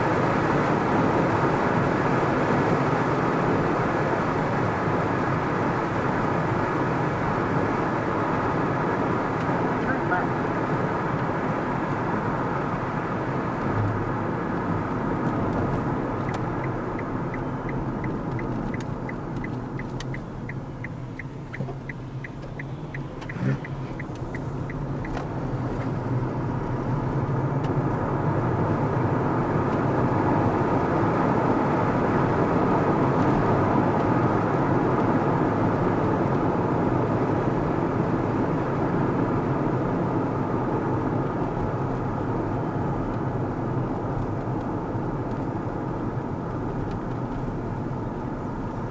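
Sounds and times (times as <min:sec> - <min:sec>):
car tyre and engine noise: 0:00.0 - 0:48.9
turn indicator ticking: 0:14.6 - 0:28.0.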